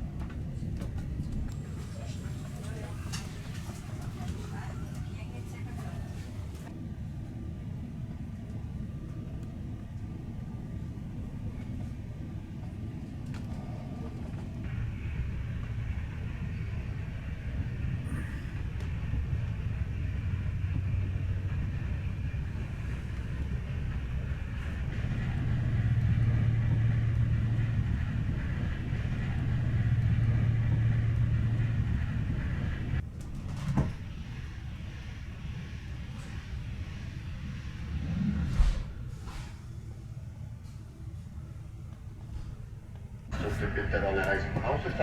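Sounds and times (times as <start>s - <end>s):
train rumbling on rails: 0.0s - 45.0s.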